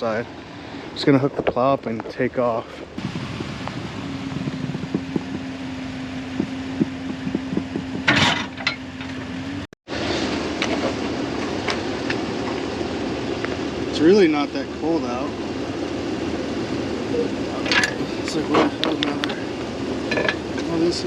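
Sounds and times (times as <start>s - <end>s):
pickup truck engine running: 0.0s - 21.0s
sharp clatter: 6.4s - 9.2s.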